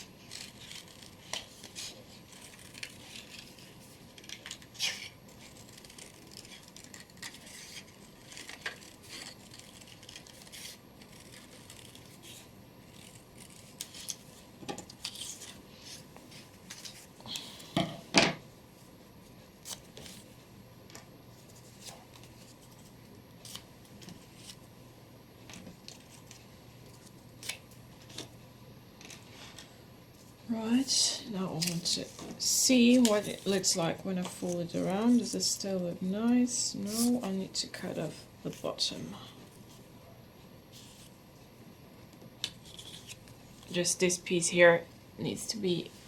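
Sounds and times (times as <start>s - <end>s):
scissors snipping paper: 0.0s - 15.6s, 32.8s - 35.4s.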